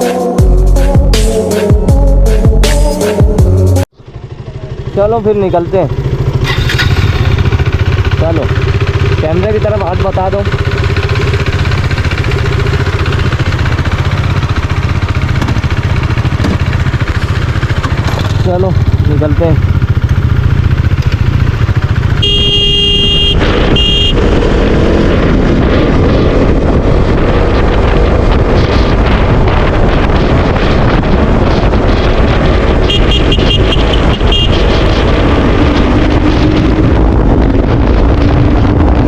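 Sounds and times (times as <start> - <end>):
motorcycle engine running: 3.4 - 39.0
wind noise on microphone: 6.1 - 39.0
vehicle horn honking: 22.0 - 24.4, 32.8 - 34.7.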